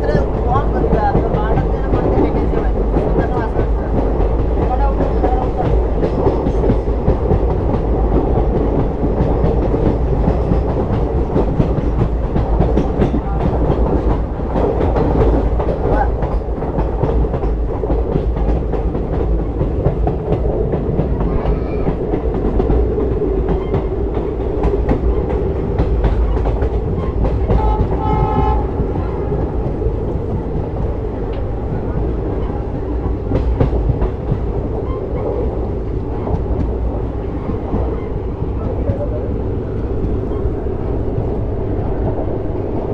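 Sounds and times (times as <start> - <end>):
wheels clicking over rail joints: 0.0 - 41.4
train rumble: 0.0 - 42.9
locomotive horn: 27.5 - 28.9.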